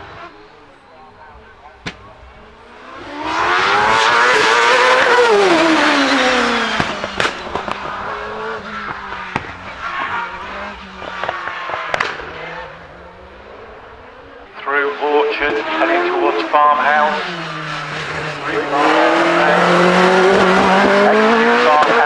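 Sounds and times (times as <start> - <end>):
race car accelerating past: 0.0 - 22.0
sharp cracks: 4.0 - 14.6.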